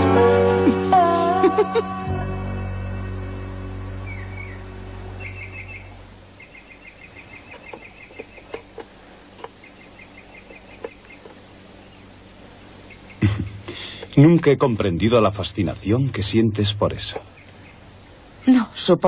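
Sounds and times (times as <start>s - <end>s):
background music: 0.0s - 6.2s
bird chirping in trills: 2.4s - 13.2s, 17.2s - 18.5s.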